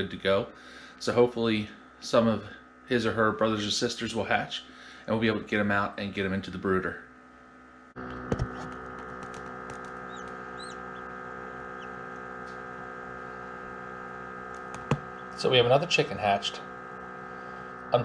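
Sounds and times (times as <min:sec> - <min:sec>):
incubator hum: 0:00.0 - 0:18.0
chicks peeping: 0:09.7 - 0:12.2.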